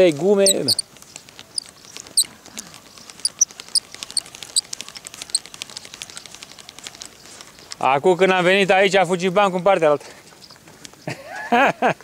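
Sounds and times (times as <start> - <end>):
small birds chirping: 0.0 - 11.6
light crackle of fine clicks: 0.1 - 8.7.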